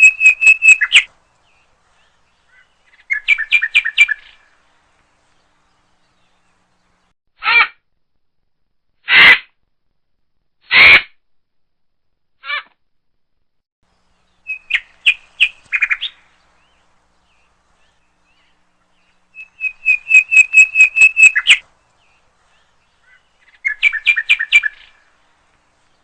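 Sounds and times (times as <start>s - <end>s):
woodpecker calling: 0.0s - 4.5s, 14.2s - 25.2s.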